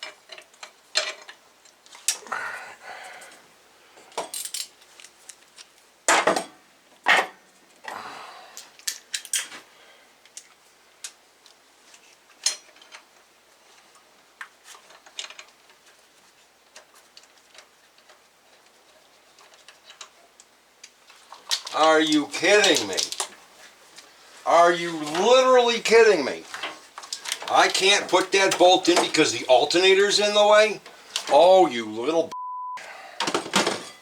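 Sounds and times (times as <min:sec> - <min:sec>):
metal tools clinking and clanking: 0:04.2 - 0:04.8, 0:08.6 - 0:09.6, 0:21.4 - 0:23.4, 0:24.6 - 0:31.3.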